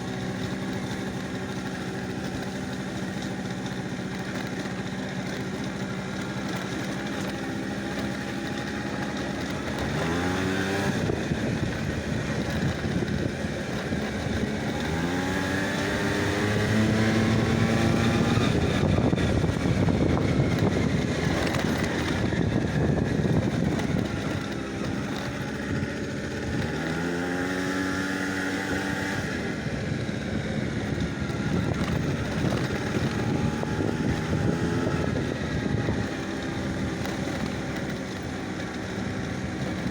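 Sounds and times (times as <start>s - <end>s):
vehicle engine revving up: 9.8s - 13.2s, 14.2s - 24.5s.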